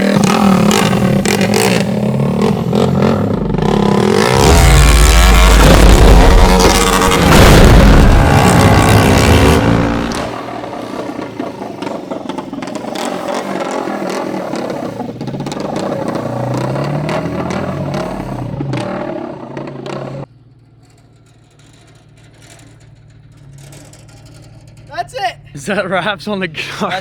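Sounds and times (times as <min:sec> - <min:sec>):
kart engine revving: 0:00.0 - 0:20.3.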